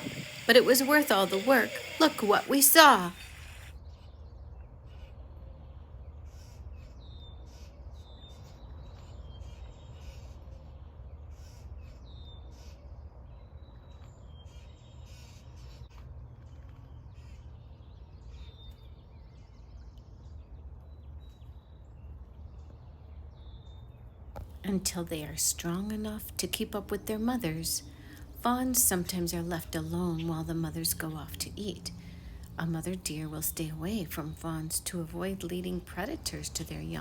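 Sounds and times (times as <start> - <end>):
birds chirping: 0.0 - 3.8, 24.7 - 37.0
steady low rumble: 24.7 - 37.0.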